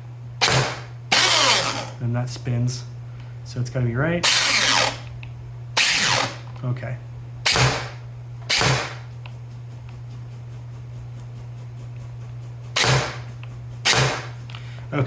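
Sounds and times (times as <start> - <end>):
steady low hum: 0.0 - 15.0
electric gun gearbox cycling: 0.4 - 2.0, 4.2 - 5.1, 5.8 - 6.6, 7.4 - 9.0, 12.8 - 13.2.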